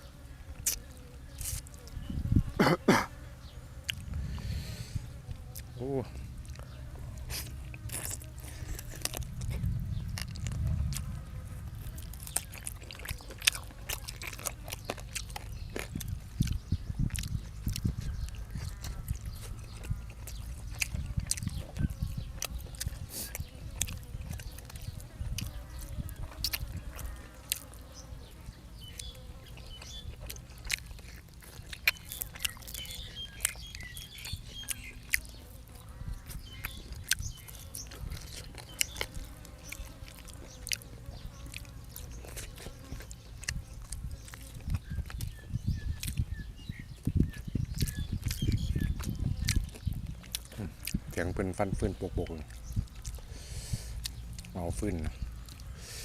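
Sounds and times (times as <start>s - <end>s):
person chewing crunchy food: 0.6s - 2.5s, 3.8s - 51.2s, 52.3s - 56.0s
low rumble: 3.9s - 13.0s.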